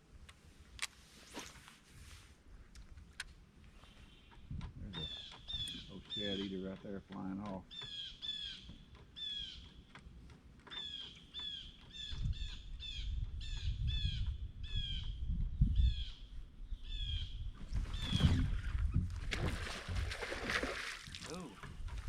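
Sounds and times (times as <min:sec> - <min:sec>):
bird calling: 0:03.8 - 0:10.0, 0:10.7 - 0:15.2, 0:15.8 - 0:18.8.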